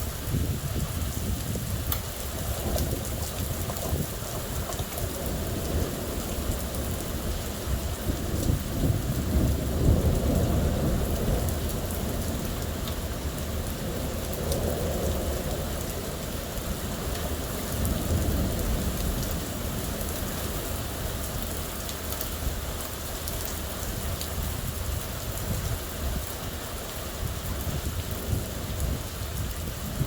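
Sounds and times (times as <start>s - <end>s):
thunder rolling: 0.0s - 19.9s
rain beating down: 0.0s - 30.0s.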